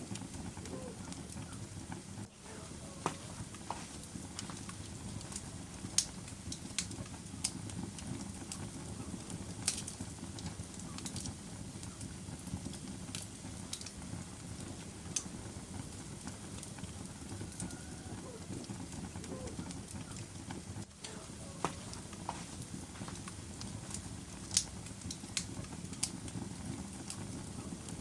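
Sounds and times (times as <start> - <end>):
fire crackles and pops: 0.0 - 28.0
low rumble of flames: 0.0 - 28.0.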